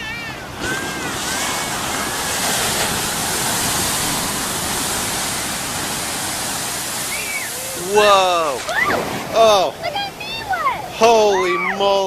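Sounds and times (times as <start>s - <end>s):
surf breaking: 0.0s - 11.4s.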